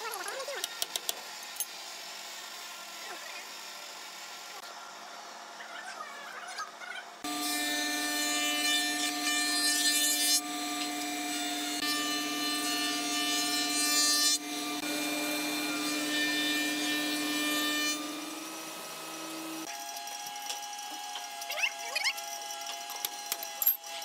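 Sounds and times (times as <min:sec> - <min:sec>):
wood shaper machine hum: 0:07.2 - 0:23.3.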